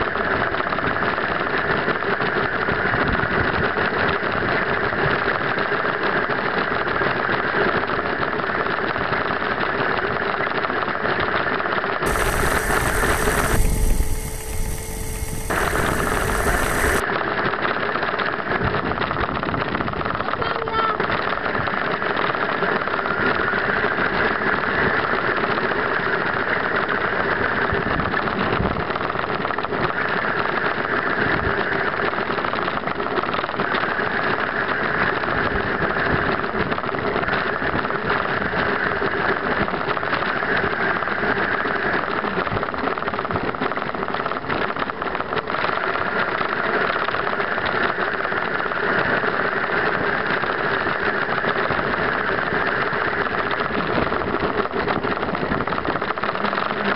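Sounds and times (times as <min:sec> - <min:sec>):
motorcycle engine running: 0:12.1 - 0:17.0.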